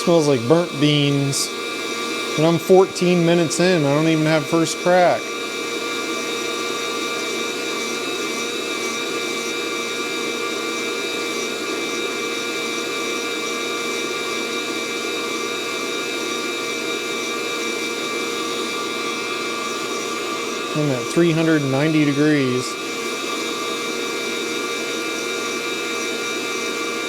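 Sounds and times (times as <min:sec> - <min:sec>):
coffee roaster fan humming: 0:00.0 - 0:27.0.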